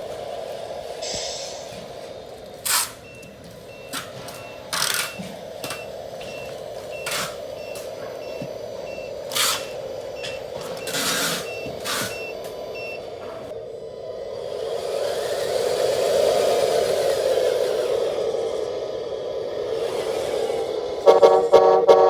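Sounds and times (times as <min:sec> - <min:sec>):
short hissing bursts: 0:01.0 - 0:03.1
toy truck engine hum: 0:02.2 - 0:22.0
short reversing beeps: 0:02.7 - 0:13.2.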